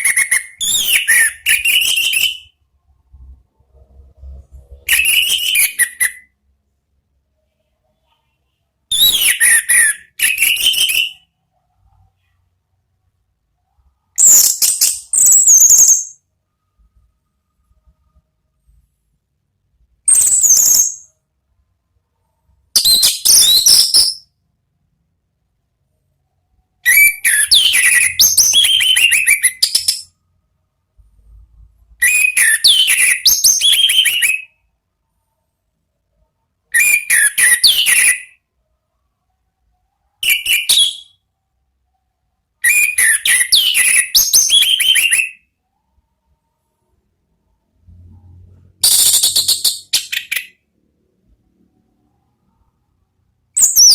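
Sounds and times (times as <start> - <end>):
thrush singing whistled notes: 0.0 - 2.6, 4.7 - 6.3, 8.9 - 11.3, 26.8 - 30.1, 32.0 - 34.6, 36.7 - 38.4, 40.2 - 41.2, 42.6 - 45.5, 53.6 - 53.9.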